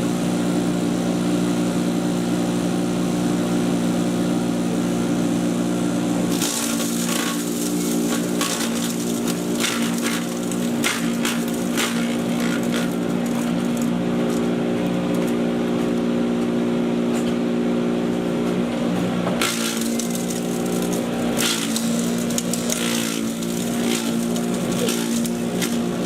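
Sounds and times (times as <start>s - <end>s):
chipper shredder motor hum: 0.0s - 26.0s
wood cracking and snapping: 6.3s - 14.5s, 19.4s - 26.0s.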